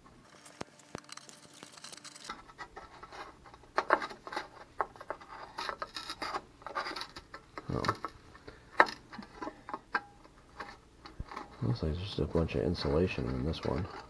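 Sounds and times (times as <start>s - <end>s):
screwdriver clicking and scraping: 0.2s - 2.3s.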